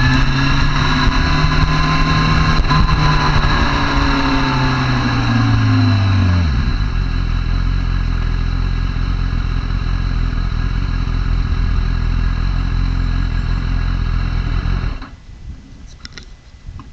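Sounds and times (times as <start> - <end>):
motorcycle engine idling: 2.3 - 15.2.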